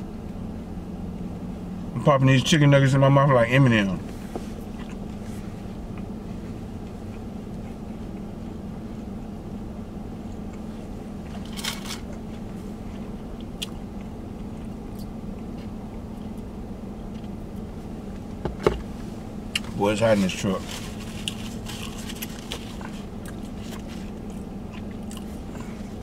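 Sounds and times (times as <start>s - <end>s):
low hum inside vehicle cab: 0.0s - 26.0s
person chewing food: 4.6s - 9.4s, 10.2s - 16.5s, 20.9s - 26.0s.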